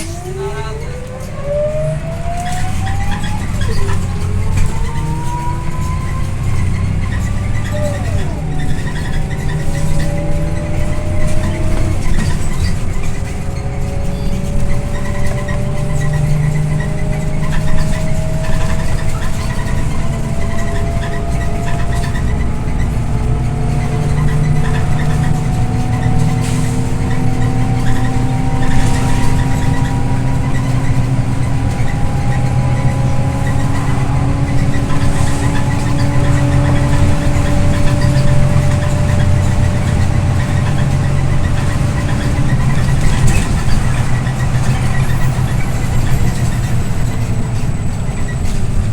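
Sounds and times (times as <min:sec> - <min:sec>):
bus engine rumble: 0:00.0 - 0:48.9
drivetrain whine: 0:00.0 - 0:48.9.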